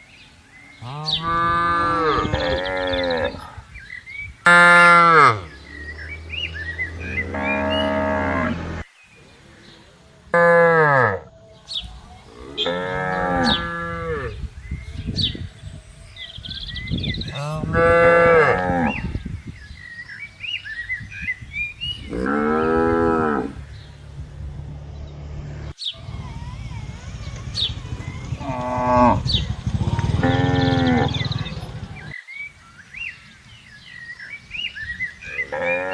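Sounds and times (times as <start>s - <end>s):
birds chirping faintly: 0.0s - 35.9s
cattle mooing: 0.8s - 3.5s, 4.4s - 8.8s, 12.3s - 14.4s, 22.1s - 23.6s, 28.0s - 32.1s.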